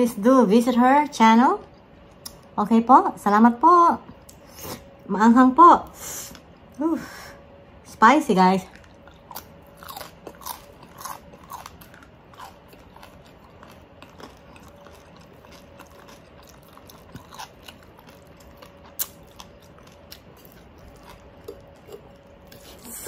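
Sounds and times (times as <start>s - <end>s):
chewing crispy pork crackling: 8.6s - 23.0s.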